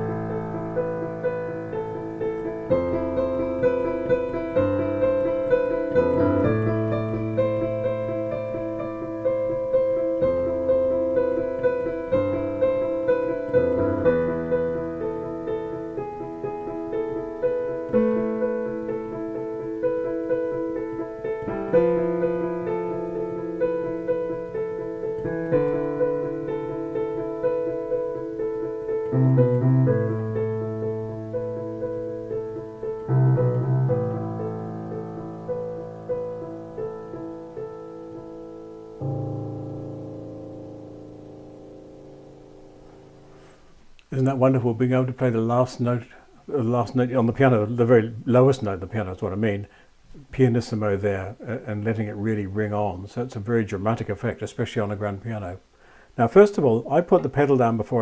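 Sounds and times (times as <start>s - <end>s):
slow solo piano piece: 0.0s - 43.7s.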